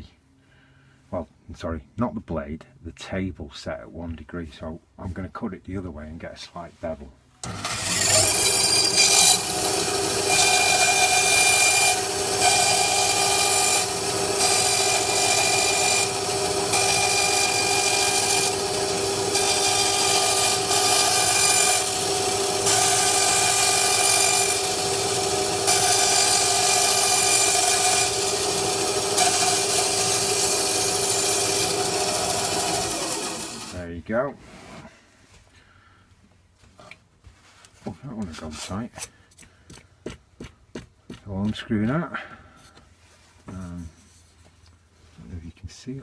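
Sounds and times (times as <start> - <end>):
bandsaw motor hum: 7.4 - 33.8
bandsaw cutting wood: 7.4 - 33.9.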